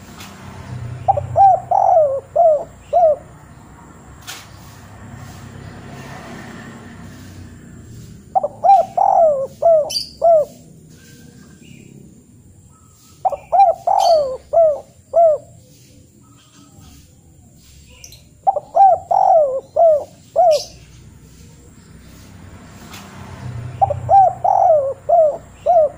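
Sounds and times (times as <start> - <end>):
bird calling: 1.0 - 3.6, 8.2 - 12.0, 12.6 - 21.8, 23.6 - 25.9.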